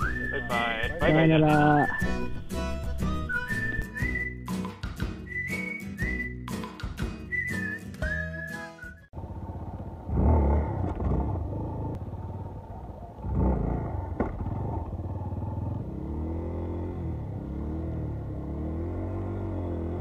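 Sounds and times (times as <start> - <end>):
dirt bike engine revving: 9.2 - 12.0, 13.2 - 20.0.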